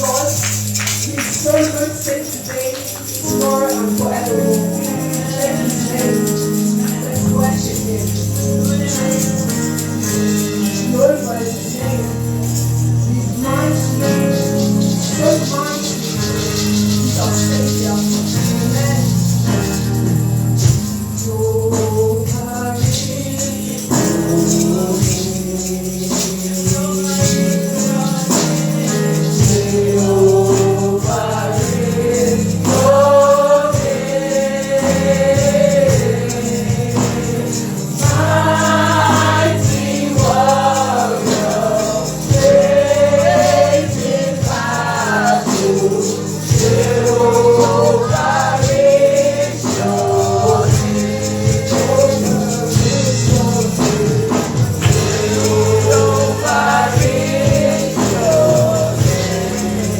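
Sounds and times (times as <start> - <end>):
steady percussion beat: 0.0 - 59.9
voices singing gospel: 0.0 - 59.9
held bass notes: 28.6 - 59.9.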